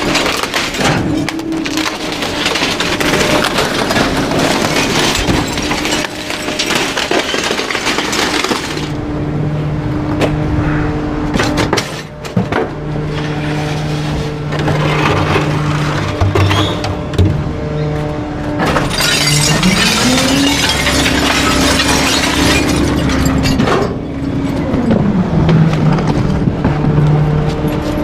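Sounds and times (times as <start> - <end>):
wood cracking and splintering: 0.0 - 9.0, 18.6 - 24.0
garbage truck packer crushing: 0.0 - 9.5, 11.2 - 28.0.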